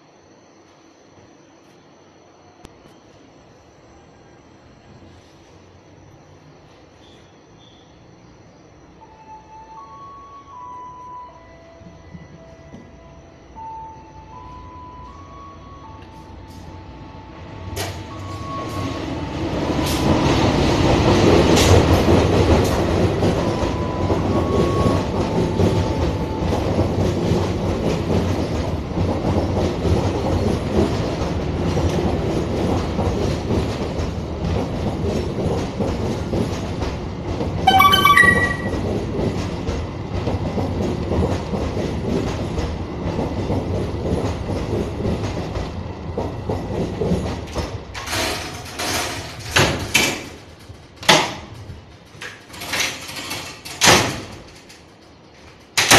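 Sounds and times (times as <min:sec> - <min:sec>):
shrill wheel squeal: 0:06.4 - 0:14.0.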